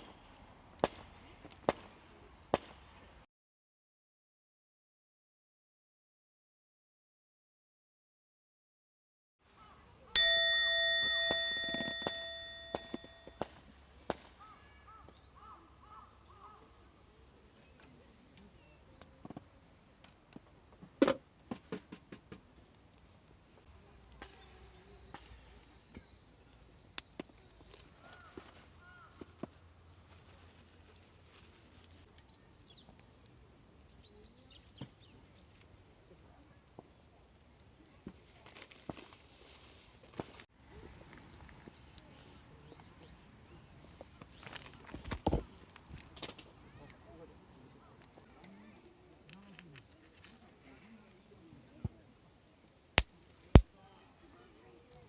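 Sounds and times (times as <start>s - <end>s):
metal object struck and ringing: 10.2s - 13.4s.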